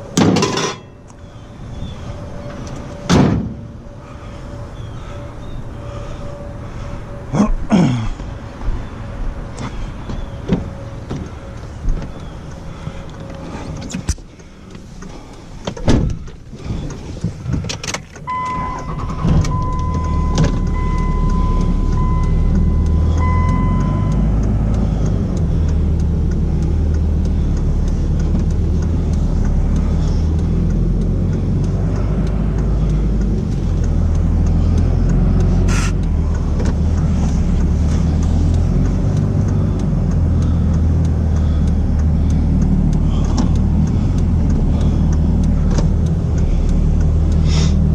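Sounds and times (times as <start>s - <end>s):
truck engine and road noise: 0.0s - 47.9s
repeating warning chime: 18.3s - 24.4s.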